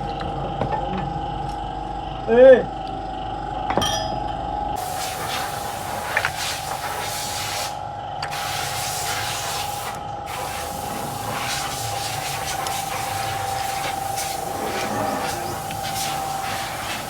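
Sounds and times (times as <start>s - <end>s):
hissing spray: 4.8s - 17.0s
steady whine: 10.1s - 17.0s.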